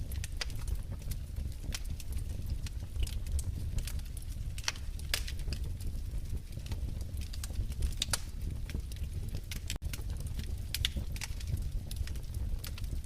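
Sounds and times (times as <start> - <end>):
fire pops and snaps: 0.0 - 13.0
wood fire crackling: 0.0 - 13.0.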